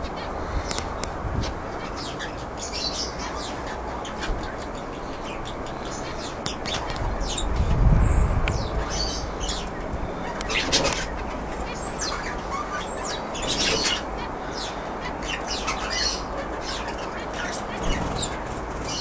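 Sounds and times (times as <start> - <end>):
canaries chirping: 0.0 - 19.0.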